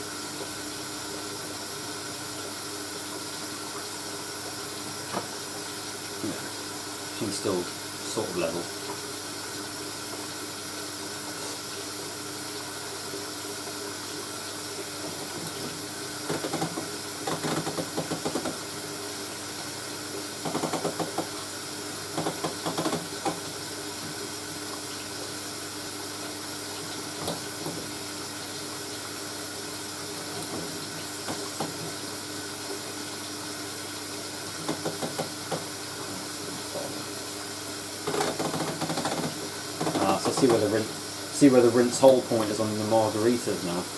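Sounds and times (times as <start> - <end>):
water hissing into washing machine: 0.0 - 43.9
irregular water bursts: 0.2 - 43.9.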